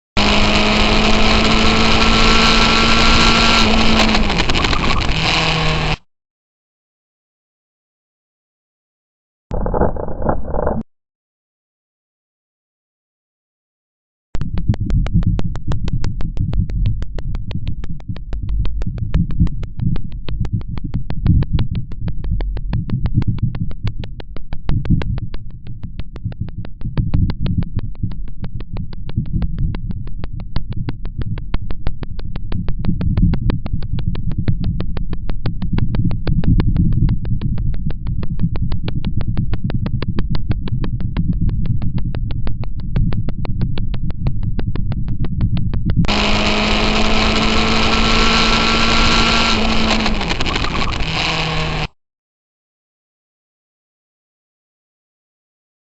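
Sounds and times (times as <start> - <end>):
motorcycle engine drone: 0.2 - 6.1, 9.5 - 10.8, 25.2 - 52.0
wind rumble on microphone: 14.4 - 51.8
fast even ticking: 14.4 - 51.9.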